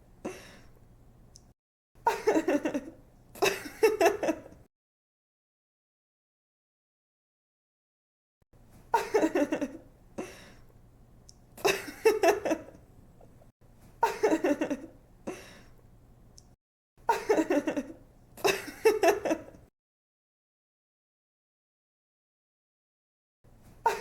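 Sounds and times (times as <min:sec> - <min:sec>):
young woman giggling: 0:08.9 - 0:09.8, 0:14.0 - 0:15.4, 0:17.1 - 0:19.6.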